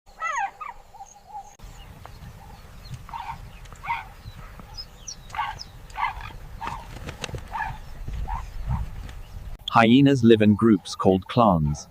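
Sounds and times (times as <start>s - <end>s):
high yelping calls: 0.1s - 9.1s
hyenas calling: 0.2s - 1.6s, 2.2s - 6.8s, 7.5s - 9.0s.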